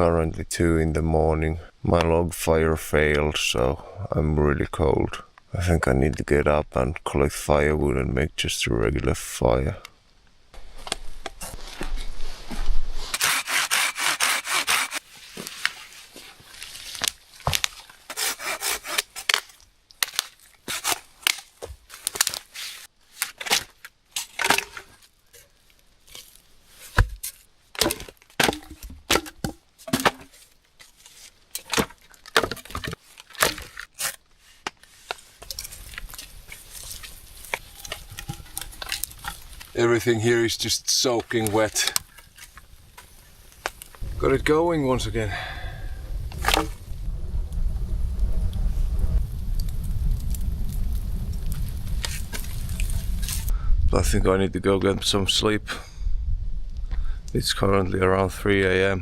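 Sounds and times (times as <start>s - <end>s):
saw rasping through wood: 13.2s - 15.0s, 18.1s - 19.2s
wood snapping and knocking: 17.0s - 18.0s, 19.2s - 22.4s, 23.2s - 25.5s, 26.9s - 30.9s, 31.5s - 34.8s, 35.4s - 39.7s, 46.3s - 46.8s.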